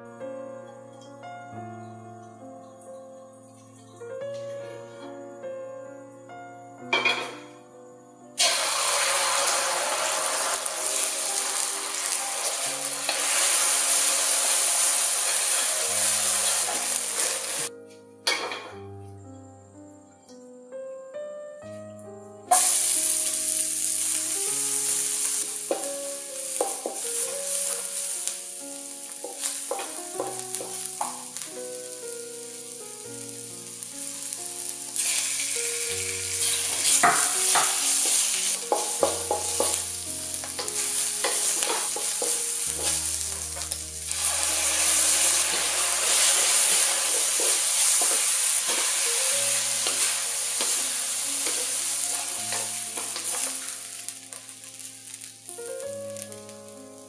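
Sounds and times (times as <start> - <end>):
gentle piano music: 0.0 - 57.0
oil sizzling in a wok: 0.6 - 7.6, 8.4 - 18.9, 22.0 - 57.0
wooden spatula scraping: 40.6 - 53.8.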